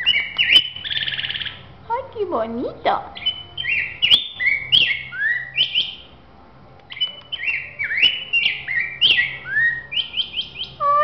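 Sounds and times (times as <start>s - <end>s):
bird singing fast warble: 0.0s - 1.7s, 3.1s - 6.2s, 6.9s - 11.0s.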